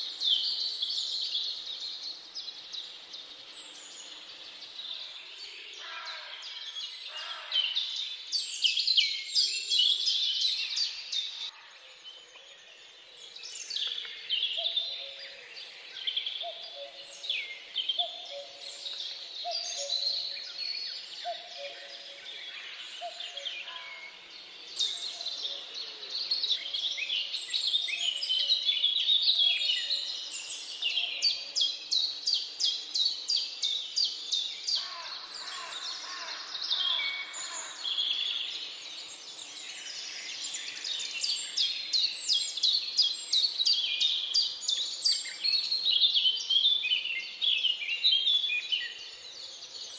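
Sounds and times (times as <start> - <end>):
birds chirping and trilling: 0.0 - 49.9.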